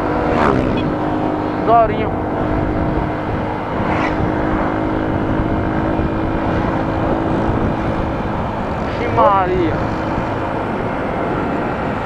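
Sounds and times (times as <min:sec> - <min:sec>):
motorcycle engine running: 0:00.0 - 0:08.9
wind and road noise: 0:00.0 - 0:12.0.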